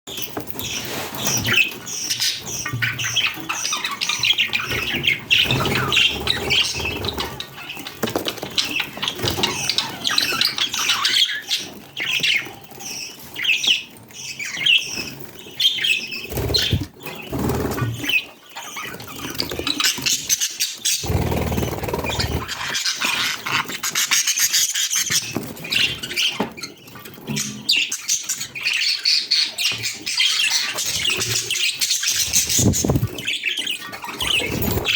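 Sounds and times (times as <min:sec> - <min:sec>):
budgerigars chattering: 0:01.3 - 0:15.0, 0:15.6 - 0:26.8.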